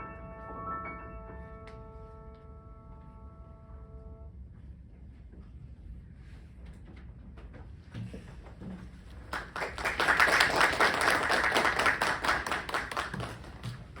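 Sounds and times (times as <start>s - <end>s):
audience applauding: 9.2s - 14.0s.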